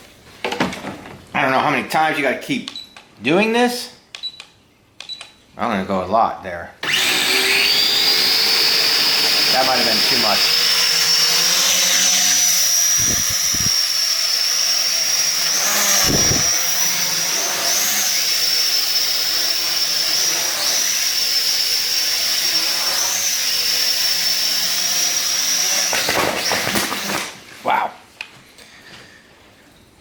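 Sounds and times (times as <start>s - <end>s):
quadcopter rotors whining: 6.8s - 26.0s.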